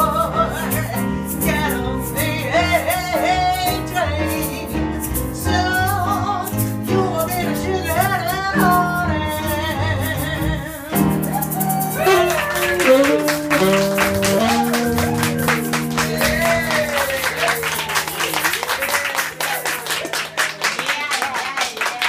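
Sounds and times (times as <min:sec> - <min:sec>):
person singing: 0:00.0 - 0:04.8, 0:05.4 - 0:17.7
jazz band playing swing: 0:00.0 - 0:20.1
piano: 0:00.0 - 0:20.6
tenor saxophone melody: 0:11.8 - 0:18.4
walking bass line: 0:11.9 - 0:17.8.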